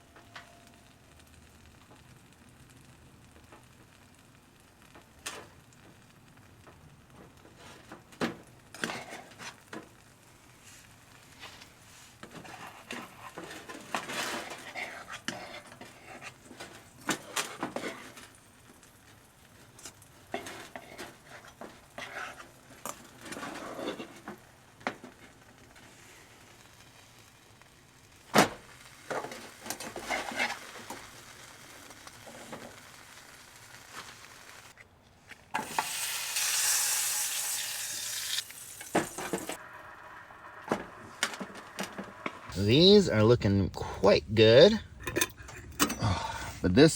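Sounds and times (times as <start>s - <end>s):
food sizzling in a pan: 0.0s - 34.8s, 35.5s - 42.5s
pan and utensils clicking: 35.6s - 39.6s.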